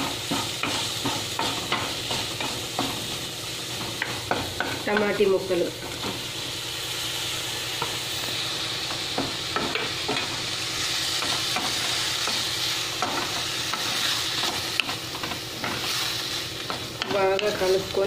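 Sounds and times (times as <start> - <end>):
vegetables sizzling in a pan: 0.0 - 18.0
spatula scraping a pan: 9.1 - 17.8.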